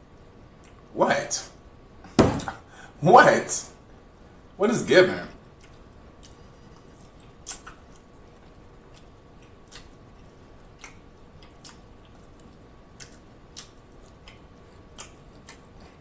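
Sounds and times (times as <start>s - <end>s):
person chewing with mouth smacks: 5.6s - 16.0s.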